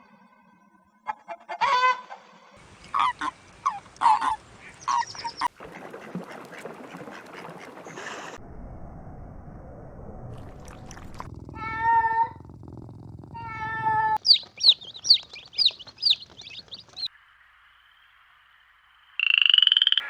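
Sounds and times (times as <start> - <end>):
waterfowl calling: 2.9 - 8.4, 14.2 - 17.1.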